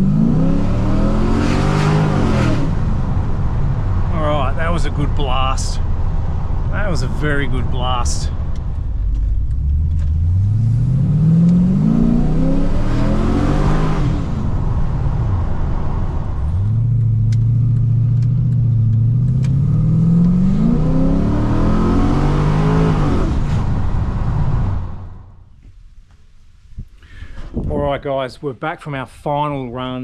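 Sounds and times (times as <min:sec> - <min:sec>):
engine revving inside car cabin: 0:00.0 - 0:04.1, 0:08.4 - 0:25.3.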